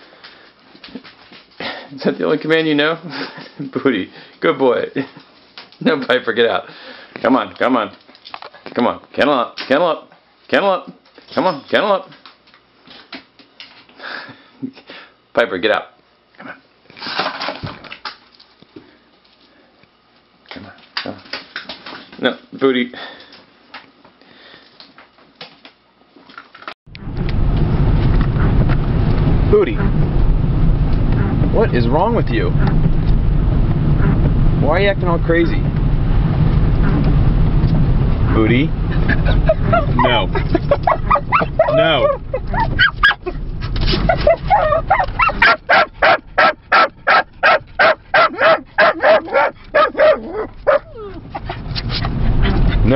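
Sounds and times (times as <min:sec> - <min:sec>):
car driving rumble from inside: 0:26.9 - 0:45.5, 0:50.5 - 0:52.9
small dog barking: 0:40.8 - 0:43.2, 0:44.1 - 0:51.2.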